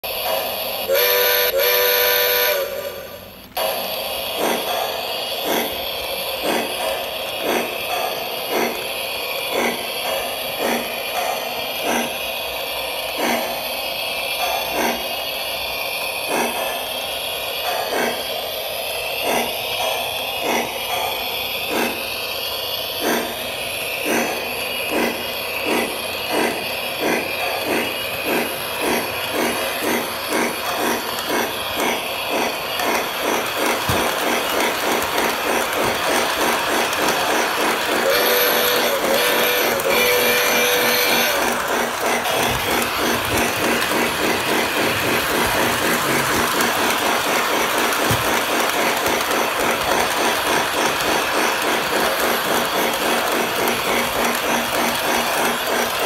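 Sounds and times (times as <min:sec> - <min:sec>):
model train running: 0:00.0 - 0:56.0
train whistle blasts: 0:00.8 - 0:03.3, 0:37.9 - 0:41.6.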